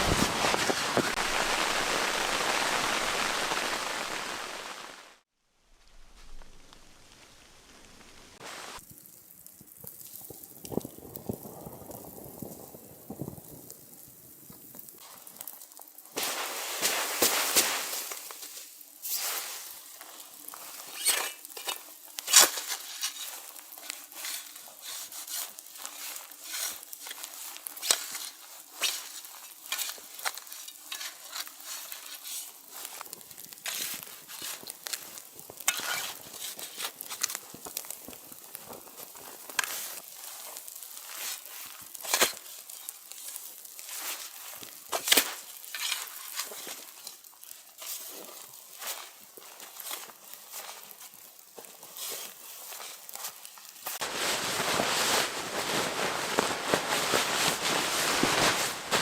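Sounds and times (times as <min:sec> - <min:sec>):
food sizzling in a pan: 0:00.1 - 0:05.2, 0:14.1 - 0:56.1
stirring clicks and scrapes: 0:20.5 - 0:54.1.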